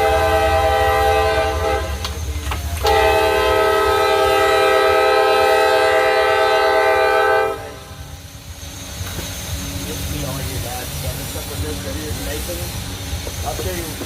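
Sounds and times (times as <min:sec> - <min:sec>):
locomotive air horn: 0:00.0 - 0:02.1, 0:02.8 - 0:08.0.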